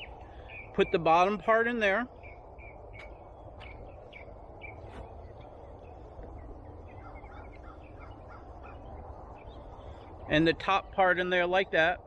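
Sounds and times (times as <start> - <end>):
small bird chirping: 2.1 - 10.3.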